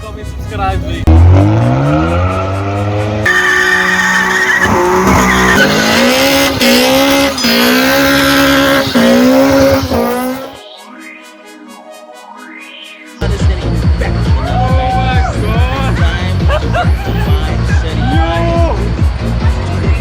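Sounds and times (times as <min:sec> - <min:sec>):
car engine revving hard: 0:01.0 - 0:10.6
tyre squeal: 0:03.3 - 0:10.5.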